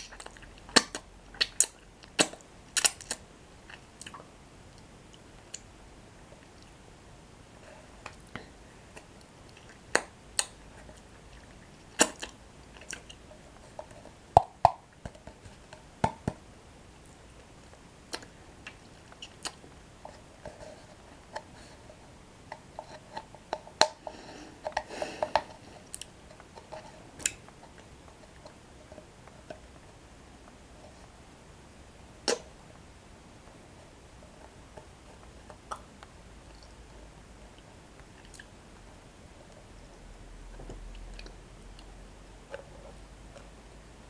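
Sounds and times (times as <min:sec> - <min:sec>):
chewing crunchy breadsticks: 0:08.9 - 0:14.2, 0:17.0 - 0:31.0, 0:33.8 - 0:43.6
wet mouth sounds: 0:32.2 - 0:32.5.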